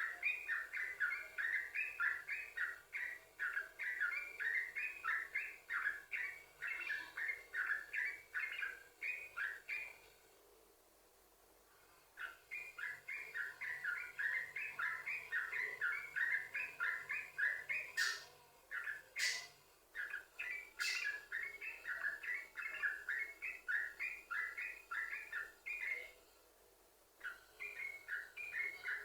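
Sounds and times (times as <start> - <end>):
bulbul chattering song: 13.1 - 19.6, 20.4 - 25.9.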